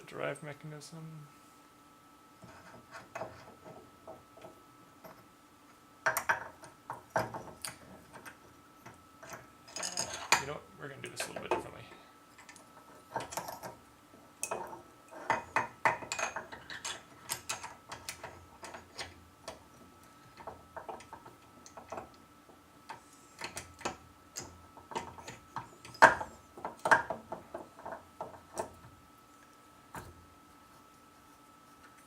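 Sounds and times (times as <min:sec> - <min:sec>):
metal parts clinking: 0:09.2 - 0:10.4.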